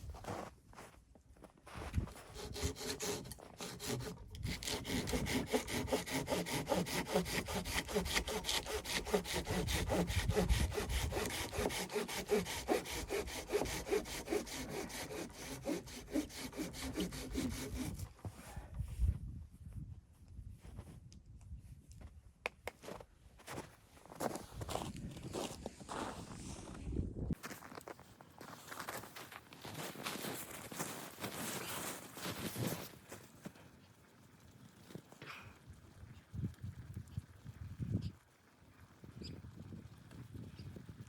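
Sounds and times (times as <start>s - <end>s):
hand saw cutting wood: 2.0s - 18.1s.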